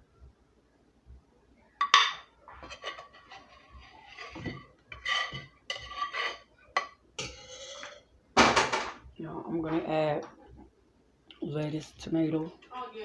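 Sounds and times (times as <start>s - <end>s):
spoon scraping and clinking on pot: 1.8s - 8.1s.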